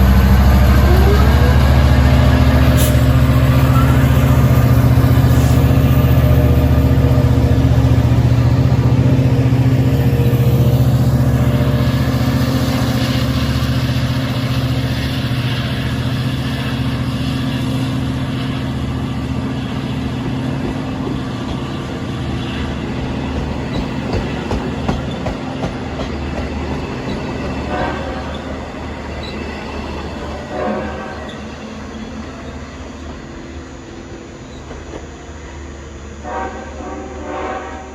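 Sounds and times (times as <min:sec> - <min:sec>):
diesel train engine hum: 0:00.0 - 0:37.9
train wheels clicking on rails: 0:12.0 - 0:31.9, 0:33.1 - 0:35.4.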